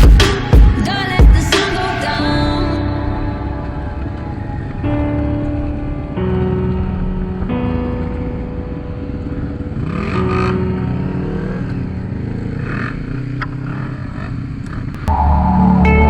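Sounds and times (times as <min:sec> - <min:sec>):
quad bike engine revving: 0:09.2 - 0:15.0.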